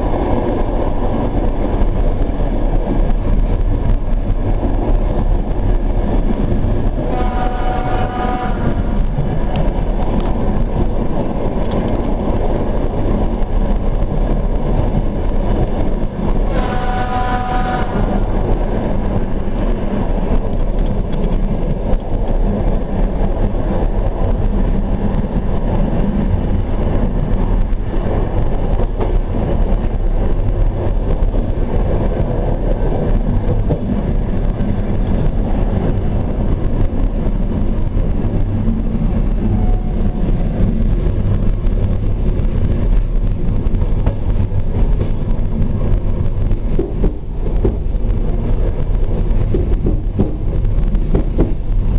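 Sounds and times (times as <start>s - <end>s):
train rumbling on track: 0.0s - 51.9s
train horn blasts: 7.0s - 9.0s, 16.4s - 18.3s, 39.5s - 40.3s.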